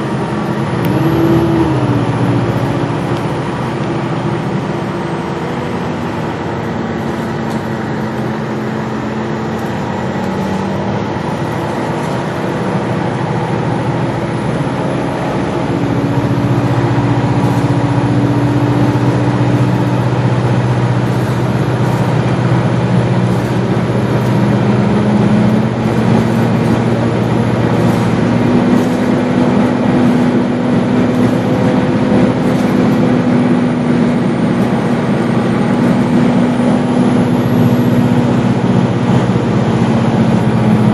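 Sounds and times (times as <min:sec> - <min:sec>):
bus engine accelerating: 0:00.0 - 0:40.9
road noise: 0:00.0 - 0:40.9.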